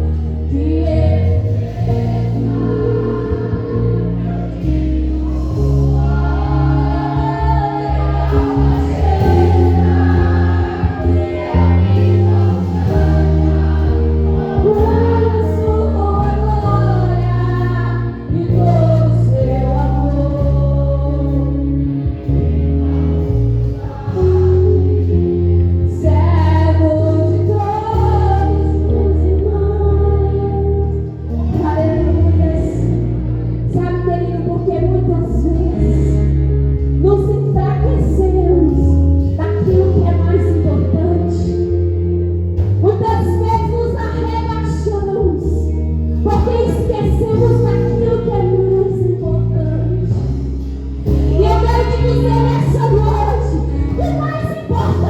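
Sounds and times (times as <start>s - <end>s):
voices singing together: 0.0s - 21.7s, 22.8s - 33.0s
amplified band with heavy bass: 0.0s - 55.0s.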